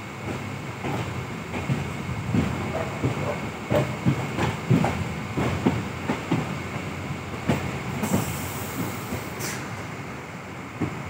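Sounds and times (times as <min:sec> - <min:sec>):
train rumbling: 0:00.0 - 0:11.0
wheels clacking over rail joints: 0:00.2 - 0:09.5
high hiss: 0:07.9 - 0:10.0.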